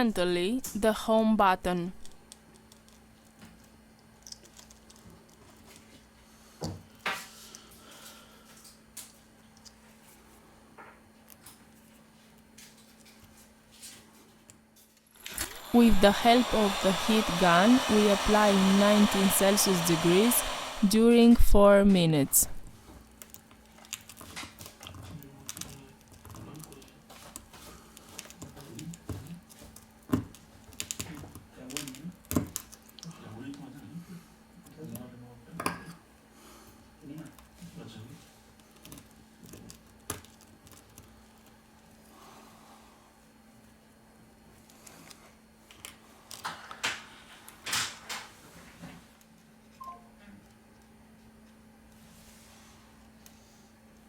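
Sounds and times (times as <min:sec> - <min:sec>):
small tools clicking and tapping: 0:02.3 - 0:05.6
louder clicks: 0:15.2 - 0:20.9.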